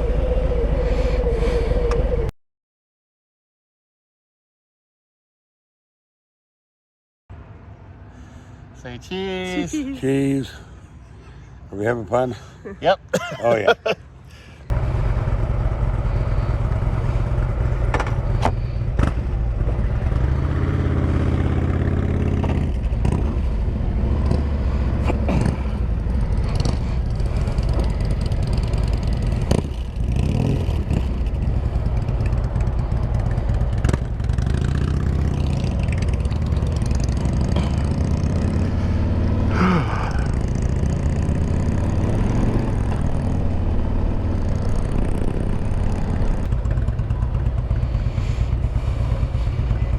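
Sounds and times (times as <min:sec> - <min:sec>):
motorcycle engine running: 0:14.7 - 0:49.9.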